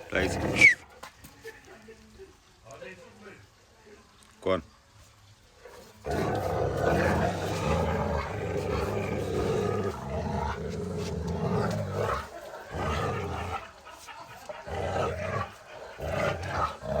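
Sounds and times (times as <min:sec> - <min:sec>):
dogs growling: 0:00.0 - 0:00.9, 0:05.7 - 0:17.0.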